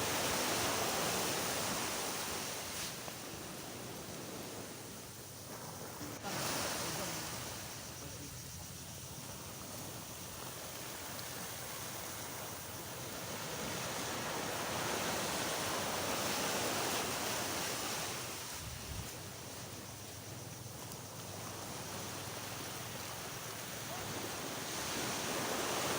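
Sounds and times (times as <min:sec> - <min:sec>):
sea waves washing onto beach: 0:00.0 - 0:25.9.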